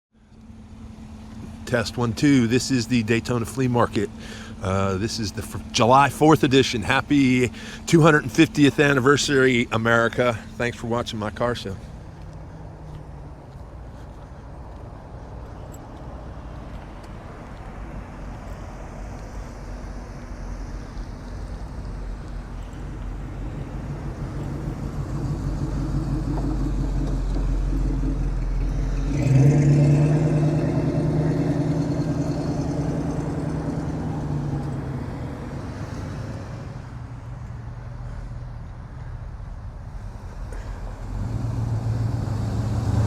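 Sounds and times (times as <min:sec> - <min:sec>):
car driving past: 0:11.4 - 0:43.0.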